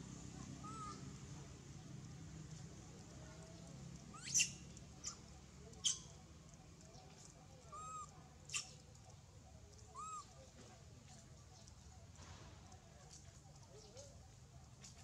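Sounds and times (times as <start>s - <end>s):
macaques short arched coos: 0.6s - 1.0s, 10.0s - 10.3s
macaques shrill squeaks: 0.6s - 1.0s, 4.1s - 5.2s, 5.8s - 6.1s, 7.7s - 8.7s, 10.0s - 10.3s.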